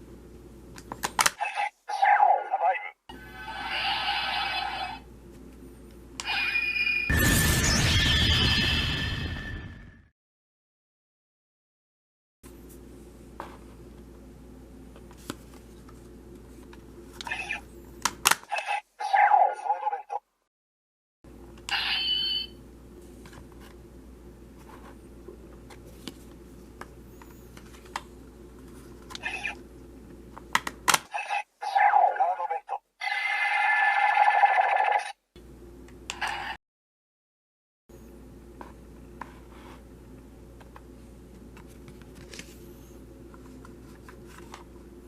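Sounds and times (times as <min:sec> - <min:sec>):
low electrical hum: 0:00.0 - 0:07.0, 0:12.5 - 0:19.0, 0:21.3 - 0:31.7, 0:35.4 - 0:36.5, 0:37.9 - 0:45.0.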